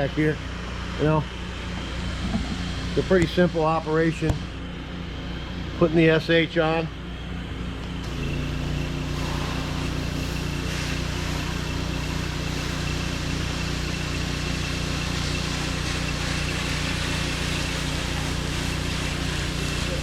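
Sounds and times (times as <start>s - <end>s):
pressure washer engine running: 0.0s - 20.0s
hiss of water spraying: 8.1s - 20.0s.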